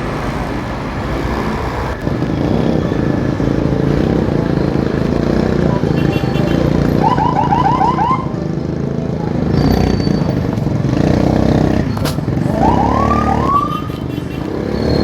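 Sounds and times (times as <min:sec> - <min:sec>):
road traffic noise: 0:00.0 - 0:15.0
motorcycle engine: 0:00.4 - 0:15.0
siren yelps and whoops: 0:07.0 - 0:08.3, 0:12.6 - 0:14.0.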